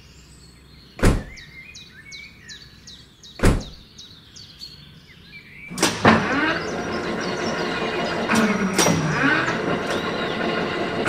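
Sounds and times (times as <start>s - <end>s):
birds chirping: 0.0s - 11.0s
sharp knocks: 1.0s - 1.4s, 3.4s - 3.8s.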